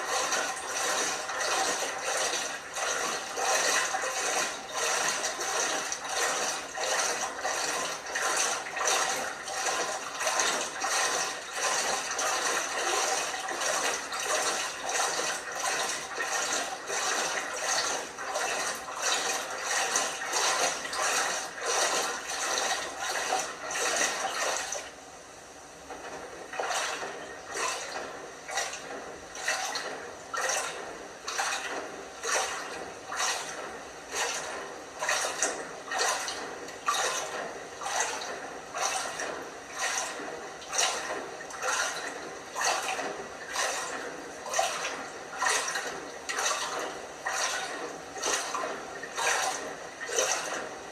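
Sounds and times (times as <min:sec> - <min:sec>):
washing machine sloshing: 0:00.0 - 0:50.9
rush of water: 0:29.4 - 0:50.9.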